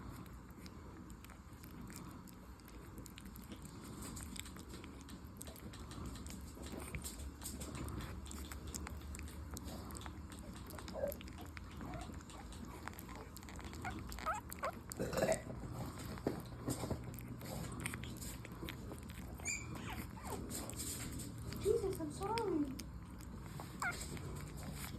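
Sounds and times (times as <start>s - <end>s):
puppies smacking and lapping: 0.0s - 24.9s
puppy squeaks and whimpers: 10.3s - 15.0s, 18.9s - 22.4s, 23.5s - 24.9s.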